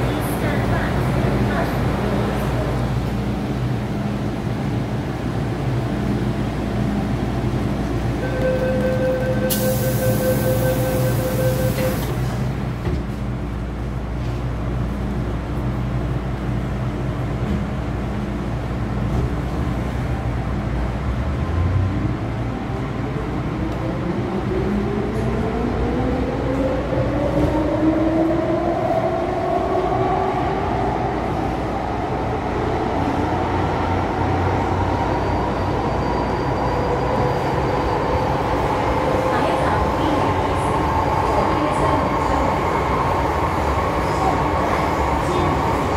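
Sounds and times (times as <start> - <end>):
train running noise: 0.0 - 45.9.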